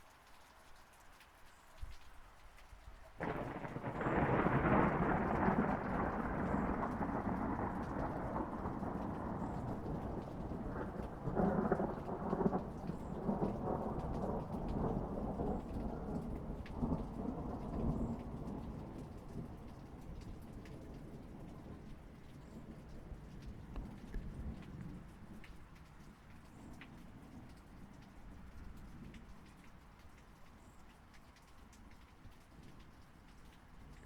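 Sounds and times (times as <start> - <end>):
steady rain: 0.0 - 34.0
thunder rumbling: 3.2 - 25.4.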